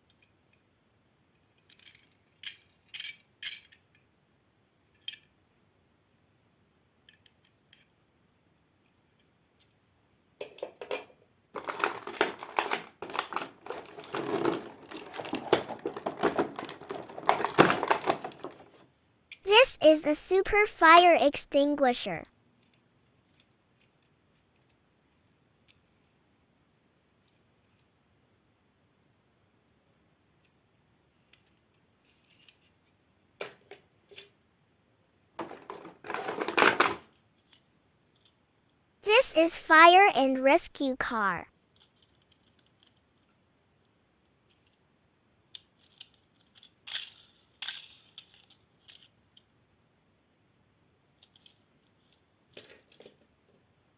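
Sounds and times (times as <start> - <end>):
plastic toys clicking and clattering: 0.0 - 0.7, 1.3 - 4.1, 4.8 - 5.5, 7.0 - 8.0, 8.8 - 9.8, 10.4 - 19.4, 22.6 - 26.0, 30.4 - 34.4, 35.4 - 38.8, 41.6 - 49.5, 51.1 - 53.7.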